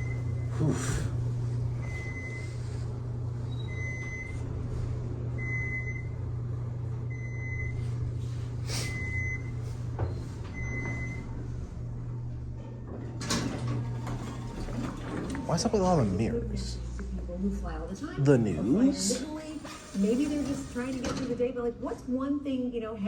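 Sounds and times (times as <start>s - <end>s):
elevator hum: 0.0s - 23.0s
short high elevator beep: 3.5s - 4.4s, 5.4s - 6.2s, 7.1s - 7.9s, 8.8s - 9.6s, 10.6s - 11.3s.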